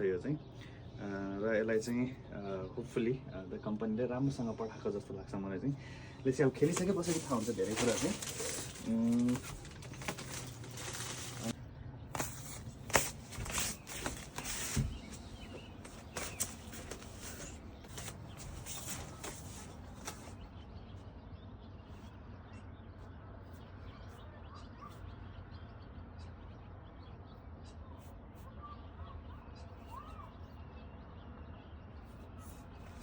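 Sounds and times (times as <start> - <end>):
handling clicks and rustles: 6.5 - 20.4
faint bird chirps: 12.2 - 33.0.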